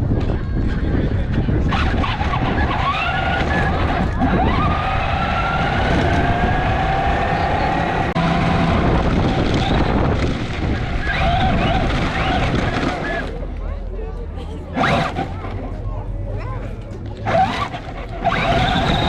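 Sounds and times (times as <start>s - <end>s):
wind rumbling on microphone: 0.0s - 13.8s
electric vehicle motor whine: 17.3s - 19.0s.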